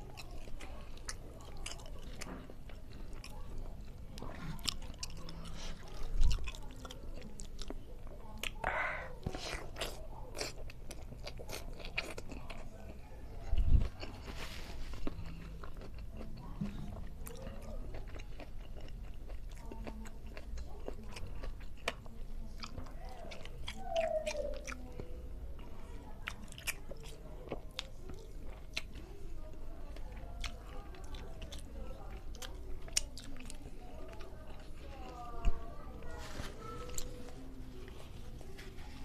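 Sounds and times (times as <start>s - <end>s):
chewing with wet lip-smacks: 0.0s - 14.3s, 14.9s - 38.9s.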